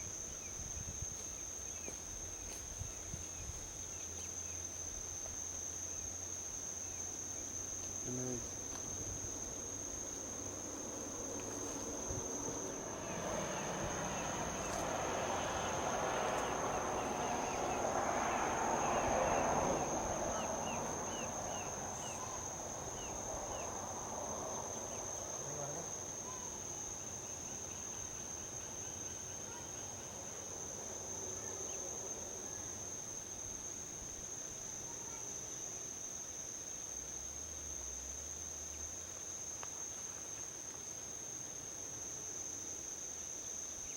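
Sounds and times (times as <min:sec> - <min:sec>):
crickets trilling: 0:00.0 - 0:43.9
vehicle passing on highway: 0:08.6 - 0:26.2.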